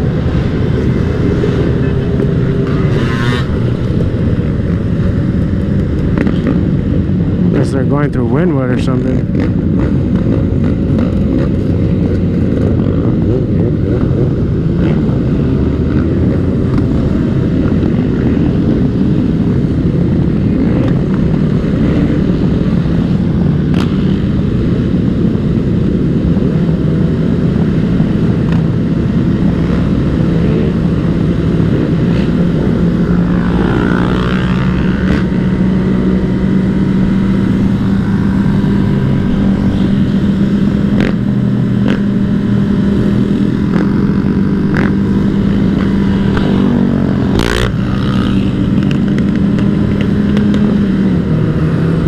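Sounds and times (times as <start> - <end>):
wind rush on microphone: 0.0 - 52.0
dirt bike engine running: 19.3 - 52.0.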